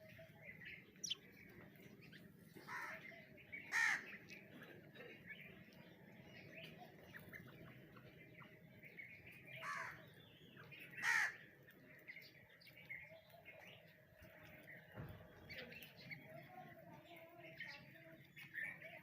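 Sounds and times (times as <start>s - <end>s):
faint chirping: 0.0s - 2.9s
harsh caw-like bird calls: 2.6s - 4.2s, 9.6s - 10.1s, 10.9s - 11.5s.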